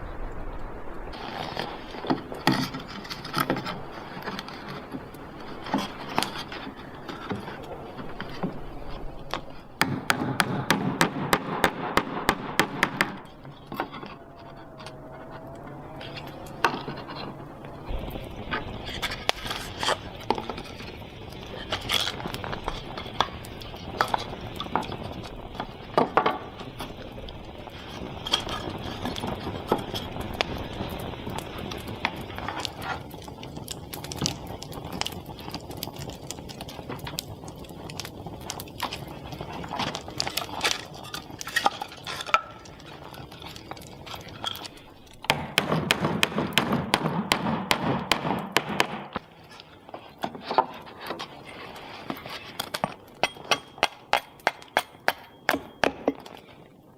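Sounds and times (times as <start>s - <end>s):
objects scraping and tapping: 31.7s - 46.6s, 49.1s - 56.7s.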